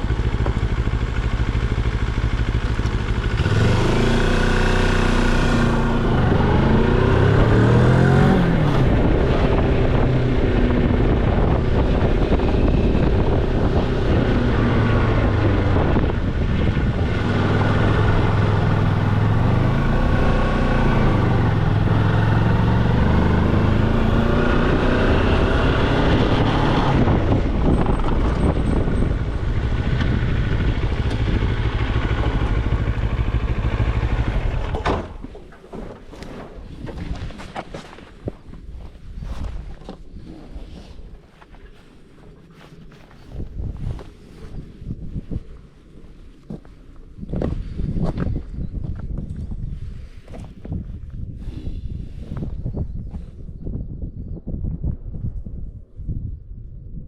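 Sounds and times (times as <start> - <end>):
motorcycle engine revving: 0.0 - 35.2.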